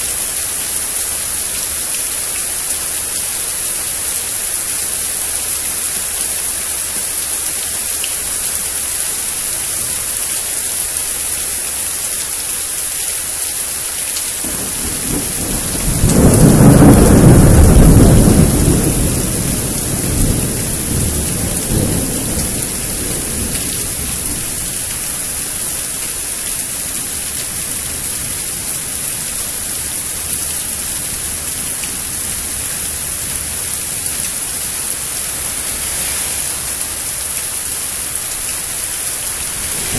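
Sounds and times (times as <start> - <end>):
rain hiss: 0.0 - 39.9
thunder rumbling: 14.4 - 25.7, 39.0 - 39.9.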